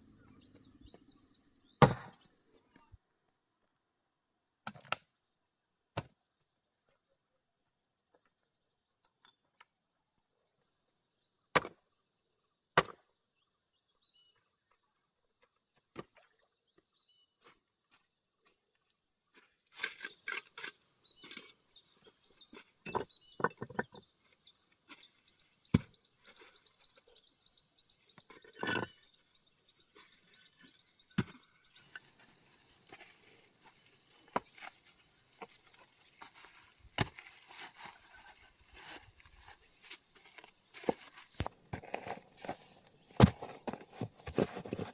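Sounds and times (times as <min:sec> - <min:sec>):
knocks and scraping: 0:19.7 - 0:24.2, 0:28.1 - 0:44.9.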